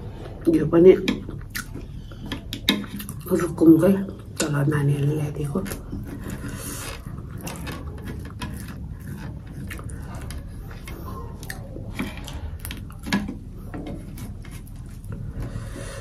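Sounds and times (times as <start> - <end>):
person chewing: 1.1 - 3.4, 5.3 - 16.0.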